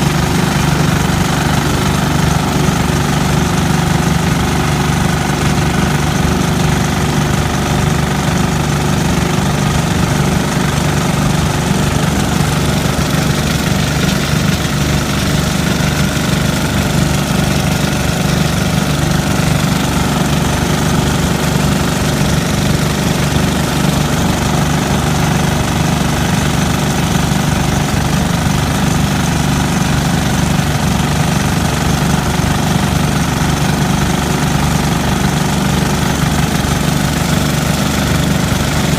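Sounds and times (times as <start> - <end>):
tractor engine chugging: 0.0 - 38.9.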